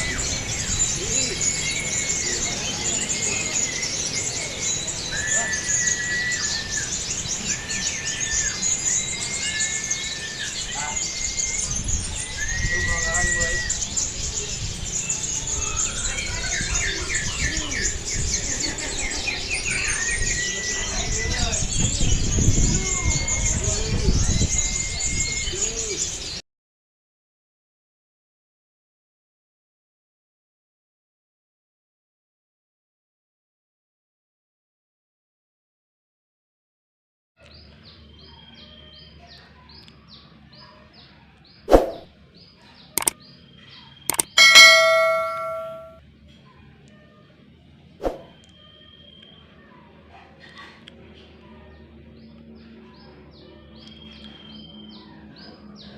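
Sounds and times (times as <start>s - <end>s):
songbirds singing: 0.0s - 26.4s, 37.4s - 46.0s, 47.1s - 55.9s
sharp clicks: 44.1s - 45.9s.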